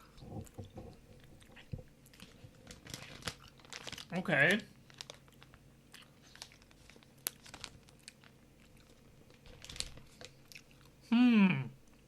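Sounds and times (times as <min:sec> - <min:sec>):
candy wrapper clicks and crinkles: 0:02.2 - 0:10.4.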